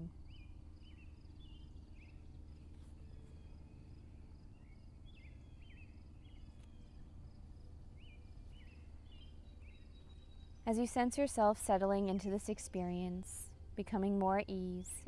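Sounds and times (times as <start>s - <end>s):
insects chirping: 0.2s - 11.0s.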